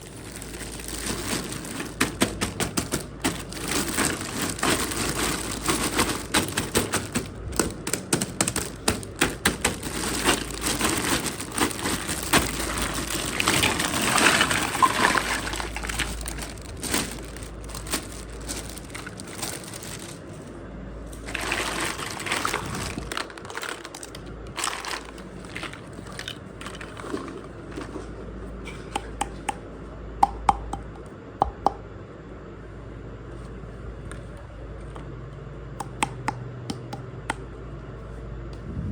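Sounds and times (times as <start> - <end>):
packaging rustling: 0.0 - 28.2
small plastic pieces clicking: 0.2 - 20.2.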